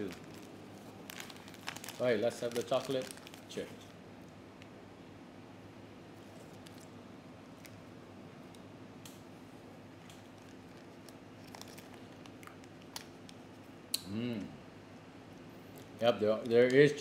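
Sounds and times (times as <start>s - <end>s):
paper wrapper rustling: 0.0s - 3.9s, 10.3s - 13.1s
steady low hum: 0.0s - 17.0s.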